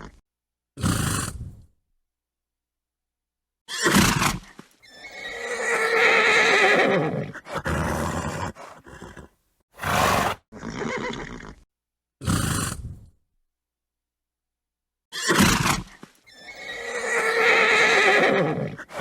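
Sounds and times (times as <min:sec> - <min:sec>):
horse whinnying: 0:03.7 - 0:11.6, 0:15.1 - 0:19.0
horse calls: 0:05.2 - 0:11.2, 0:16.5 - 0:19.0
horse snorting: 0:07.2 - 0:11.6, 0:18.1 - 0:19.0.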